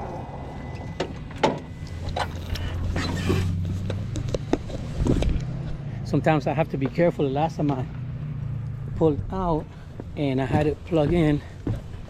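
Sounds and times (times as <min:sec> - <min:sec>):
low steady hum: 0:00.0 - 0:03.6.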